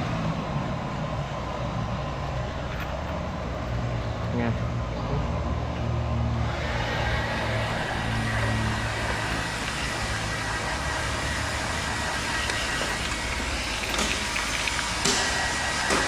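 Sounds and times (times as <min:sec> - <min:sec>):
blow dryer running: 0:06.4 - 0:16.0.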